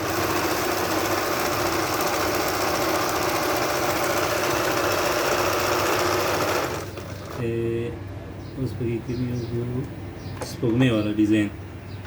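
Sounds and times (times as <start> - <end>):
sewing machine running: 0.0 - 7.5.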